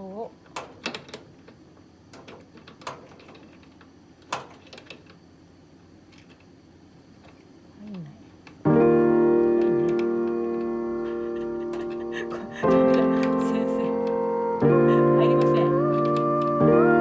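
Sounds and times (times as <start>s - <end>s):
loud ringing chord: 8.7s - 17.0s.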